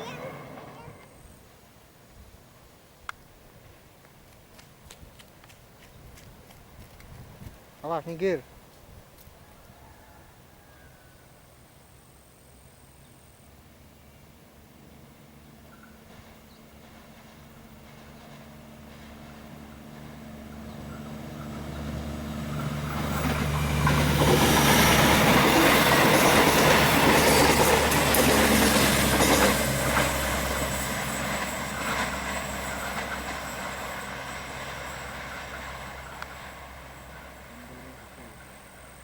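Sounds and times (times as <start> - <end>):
locomotive engine hum: 11.5 - 39.0
train wheels clattering: 15.7 - 37.5.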